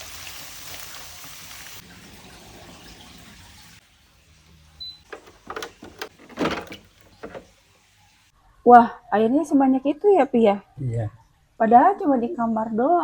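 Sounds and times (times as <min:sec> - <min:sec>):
short knocks and clicks: 0:05.0 - 0:07.5.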